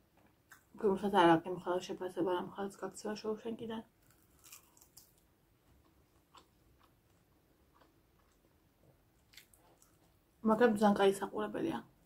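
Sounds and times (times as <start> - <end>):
chewing: 4.0 - 8.6, 9.2 - 10.2.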